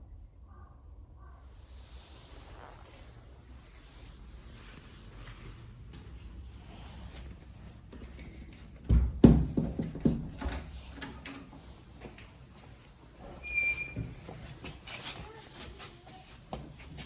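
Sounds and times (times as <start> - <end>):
knocks and clunks: 8.8 - 11.5.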